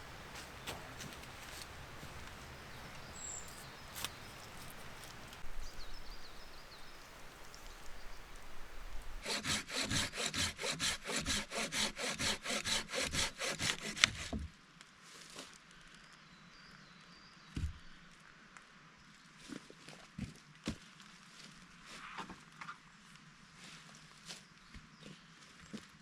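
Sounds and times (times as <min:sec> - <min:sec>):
wood cracking: 0:00.0 - 0:05.7
hand saw cutting wood: 0:00.2 - 0:02.4, 0:09.2 - 0:14.5.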